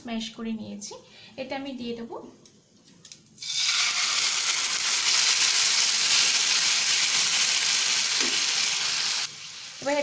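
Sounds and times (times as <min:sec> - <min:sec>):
fruit sizzling in hot oil: 0:03.4 - 0:10.0.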